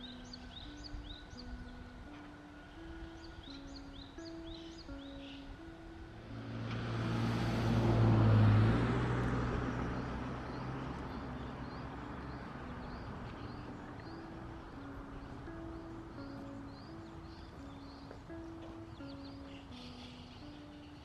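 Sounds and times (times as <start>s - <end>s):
vehicle passing by: 5.9s - 18.8s.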